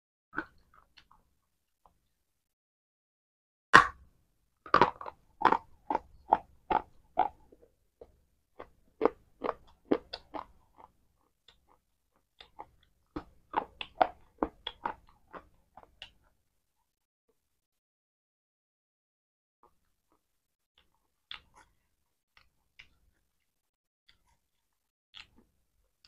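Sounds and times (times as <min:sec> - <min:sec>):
person chewing crunchy food: 0:04.7 - 0:16.4, 0:20.8 - 0:26.0.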